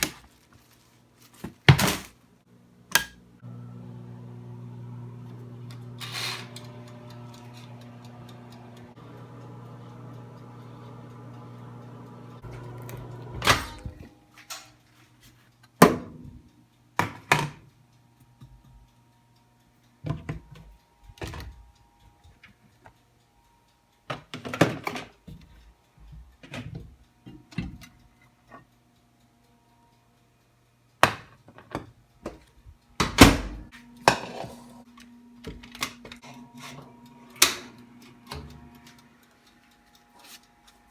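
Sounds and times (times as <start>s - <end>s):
microwave oven humming: 2.5s - 14.4s, 31.8s - 40.9s.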